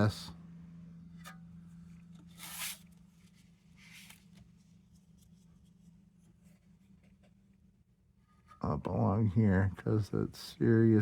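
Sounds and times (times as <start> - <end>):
steady low hum: 0.0 - 11.0
rustling scrapes on tin: 2.2 - 2.9.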